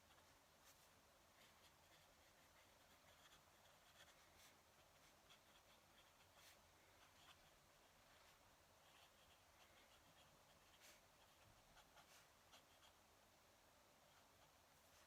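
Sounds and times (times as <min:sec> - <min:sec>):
pen nib scratching on paper: 0:01.4 - 0:13.0.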